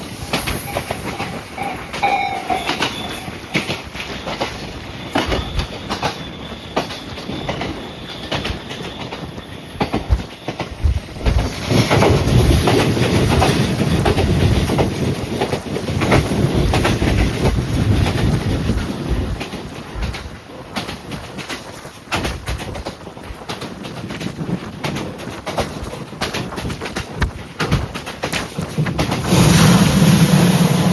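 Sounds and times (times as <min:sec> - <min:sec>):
electric train running on rails: 0:00.0 - 0:30.9
high-pitched tone: 0:00.5 - 0:03.7.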